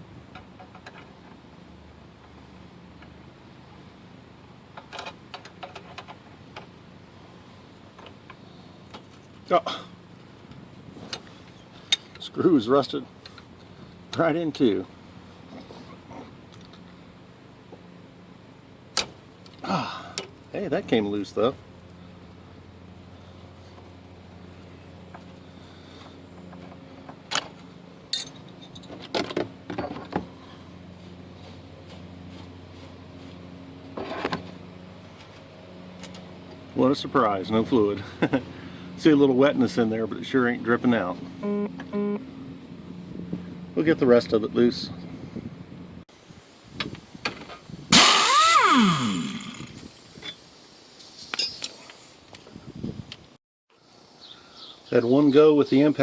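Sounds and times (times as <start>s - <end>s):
low steady hum: 0.0s - 53.1s
metal tools clinking and rattling: 27.4s - 29.0s, 51.3s - 52.0s
impact wrench burst: 47.9s - 49.8s.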